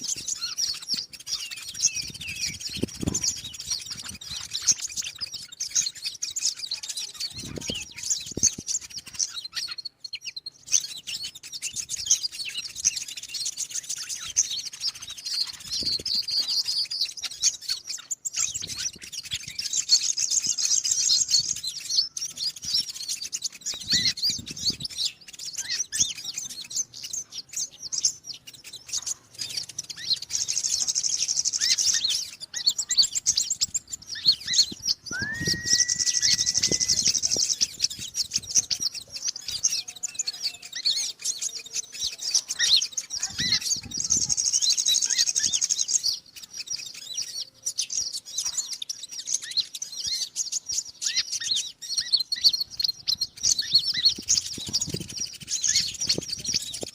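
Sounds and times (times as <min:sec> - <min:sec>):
birds chirping and twittering: 0:00.0 - 0:56.9
buzzy bird trills: 0:00.0 - 0:56.9
rising bird whistle: 0:33.4 - 0:39.0.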